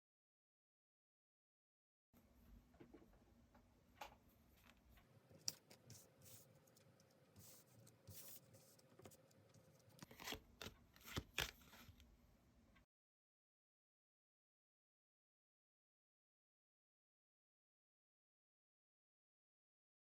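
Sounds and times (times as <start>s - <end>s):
cards sliding and clicking: 5.4s - 12.0s.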